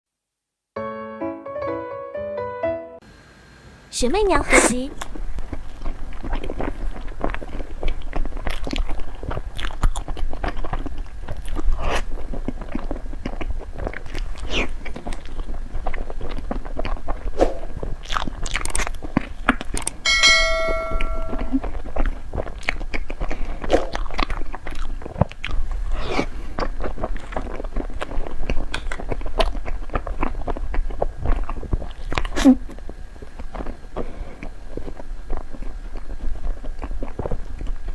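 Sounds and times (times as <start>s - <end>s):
biting and chewing: 4.9s - 20.1s, 21.6s - 37.9s
bright ringing chime: 20.1s - 21.7s.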